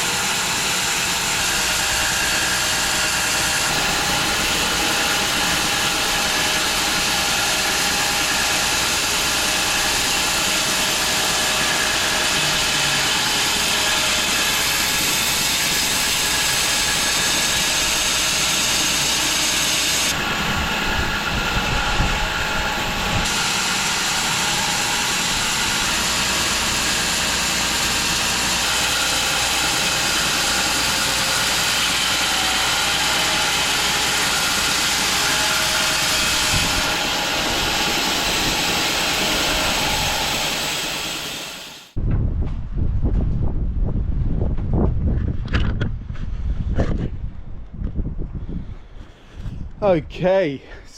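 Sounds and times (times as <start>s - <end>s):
bandsaw mill sawing log: 0.0s - 41.9s.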